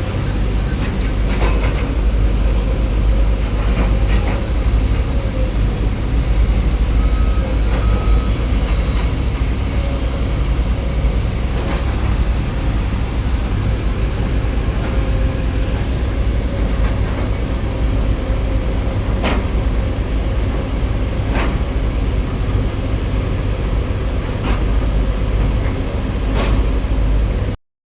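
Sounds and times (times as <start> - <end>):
excavator diesel engine running: 0.0 - 27.6.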